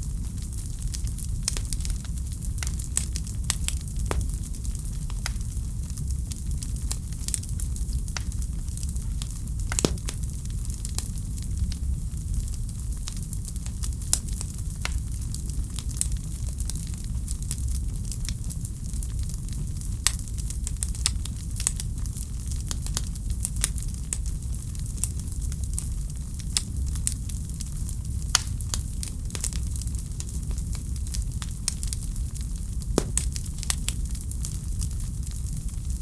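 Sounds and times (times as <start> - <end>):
wood fire crackling: 0.1 - 16.1, 30.2 - 35.5.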